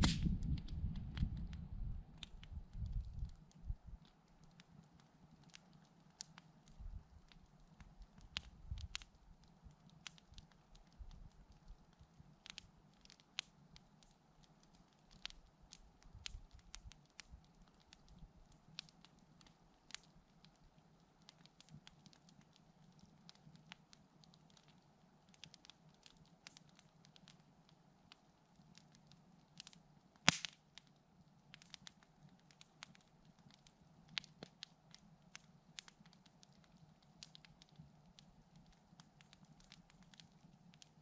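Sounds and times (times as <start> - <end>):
campfire crackling and popping: 0.0 - 41.0.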